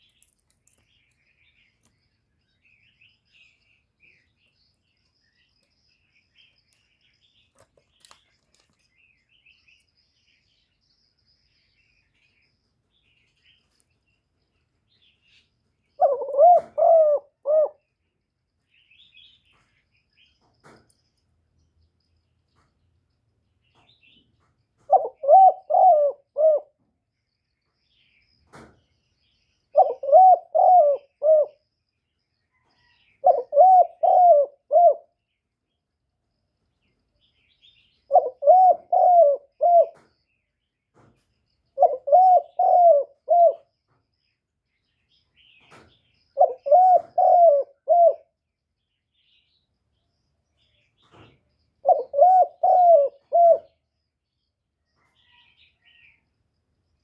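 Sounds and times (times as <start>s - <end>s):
dove cooing: 16.0s - 17.9s, 24.9s - 26.8s, 29.7s - 31.6s, 33.2s - 35.2s, 38.1s - 40.0s, 41.8s - 43.7s, 46.4s - 48.4s, 51.8s - 53.8s.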